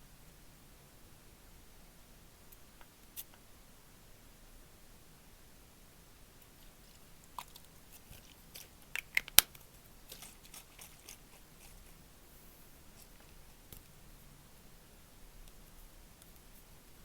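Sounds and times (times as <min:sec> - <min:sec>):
crisp clicks and crunches: 0:06.4 - 0:12.0
soft crackles: 0:06.4 - 0:14.3.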